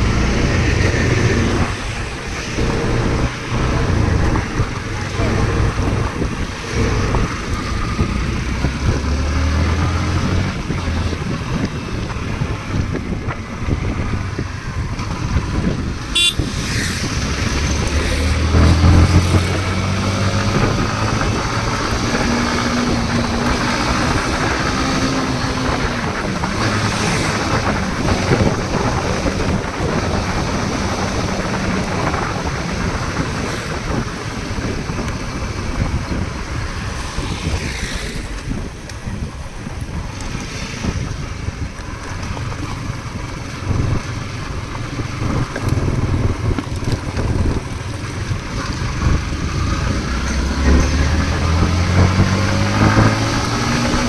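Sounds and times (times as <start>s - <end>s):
rushing noise: 0.0s - 42.0s
vehicle engine running: 0.0s - 54.0s.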